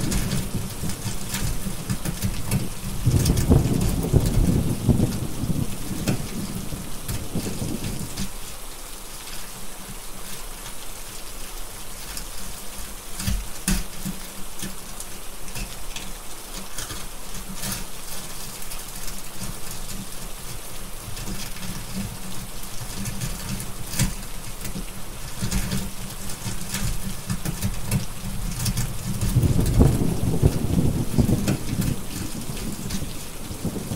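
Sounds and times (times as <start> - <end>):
heavy rain: 0.0 - 33.9
wood fire crackling: 0.0 - 33.9
thunder rumbling: 2.5 - 8.2, 28.9 - 33.9.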